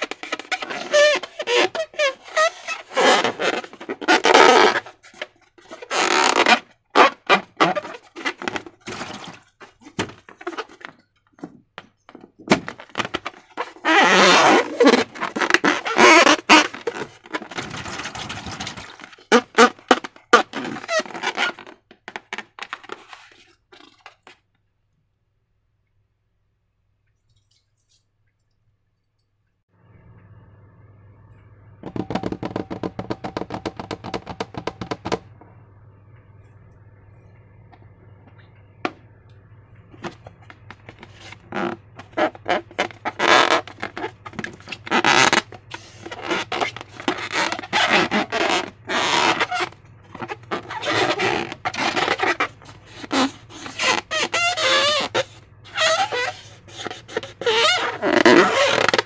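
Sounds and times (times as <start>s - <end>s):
faint steady hum: 24.4s - 59.0s.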